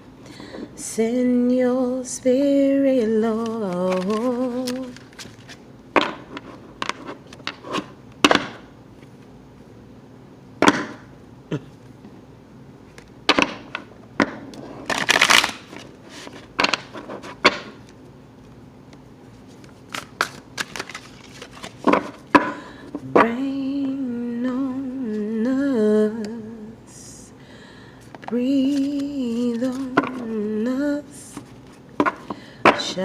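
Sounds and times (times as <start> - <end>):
cards being shuffled: 3.0 - 9.3, 12.9 - 18.6, 19.2 - 23.3, 28.1 - 30.4, 31.3 - 32.9.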